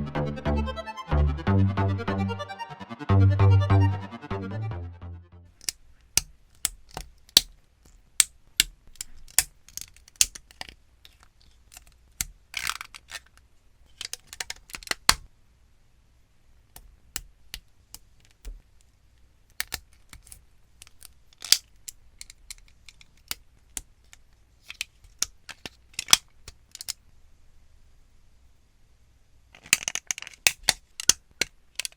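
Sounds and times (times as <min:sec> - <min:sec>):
electronic music: 0:00.0 - 0:05.5.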